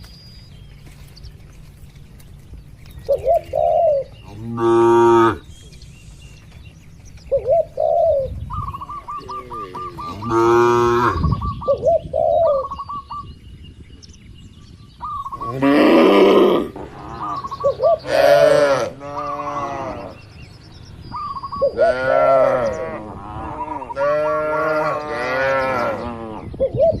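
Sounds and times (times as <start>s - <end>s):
cattle mooing: 9.2s - 11.2s, 15.5s - 20.2s, 21.7s - 26.5s.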